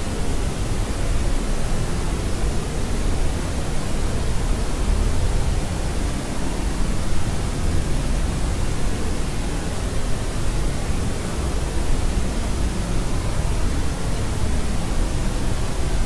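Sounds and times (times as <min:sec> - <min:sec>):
white noise hiss: 0:00.0 - 0:16.0.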